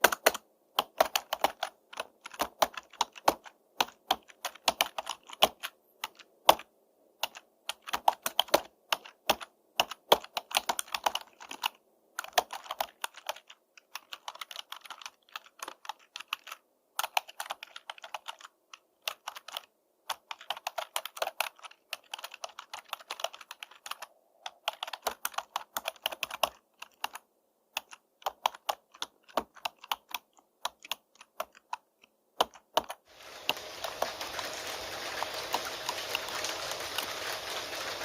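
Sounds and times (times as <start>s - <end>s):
typing on computer keyboard: 0.0s - 27.2s, 27.8s - 38.0s
rain hissing: 33.1s - 38.0s.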